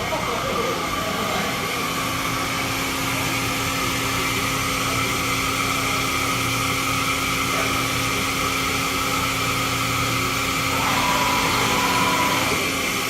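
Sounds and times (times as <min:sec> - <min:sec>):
machine hum with constant tones: 0:00.0 - 0:13.0.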